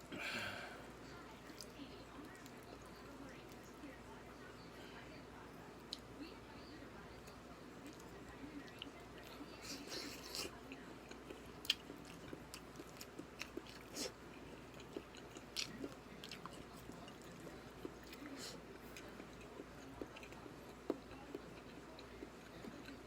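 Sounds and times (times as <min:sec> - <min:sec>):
person chewing: 0:07.8 - 0:23.0.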